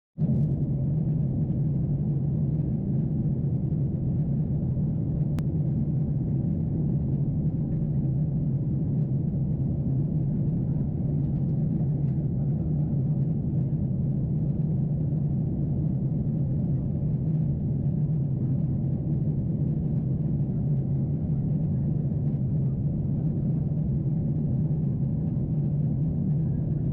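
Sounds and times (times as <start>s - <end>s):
airliner cabin rumble: 0.2s - 26.9s.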